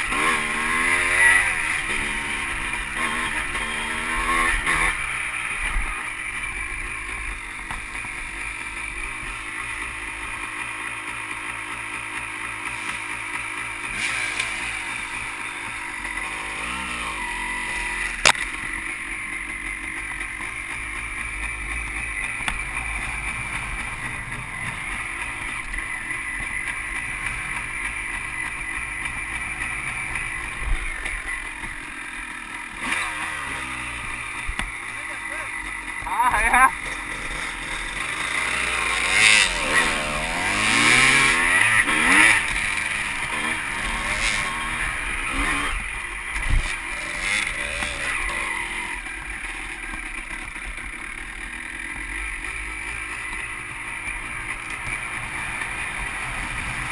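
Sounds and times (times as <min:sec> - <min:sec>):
dirt bike engine revving: 0:00.0 - 0:56.9
sharp click: 0:18.2 - 0:18.5.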